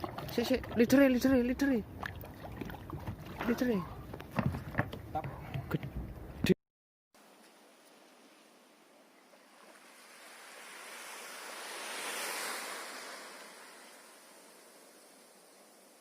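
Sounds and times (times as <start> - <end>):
sea wave washing in: 9.2 - 16.0.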